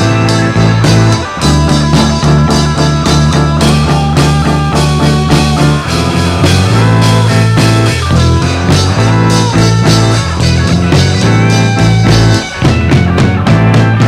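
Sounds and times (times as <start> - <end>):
instrumental rock music: 0.0 - 14.0.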